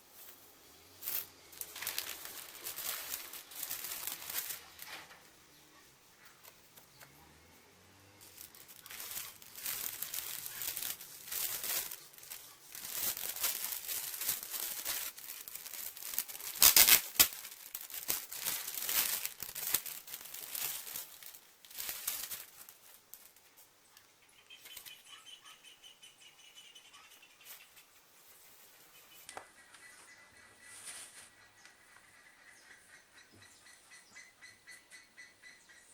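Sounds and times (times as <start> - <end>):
packaging tearing: 1.0 - 4.9, 8.2 - 23.3
packaging crinkling: 1.0 - 5.1, 8.2 - 23.4.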